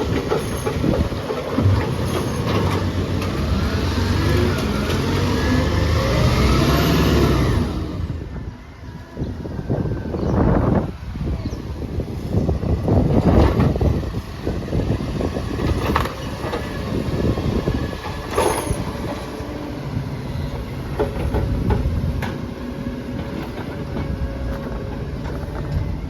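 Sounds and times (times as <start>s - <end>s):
clunks and knocks: 0.0s - 3.6s
garbage truck engine rumble: 0.0s - 26.0s.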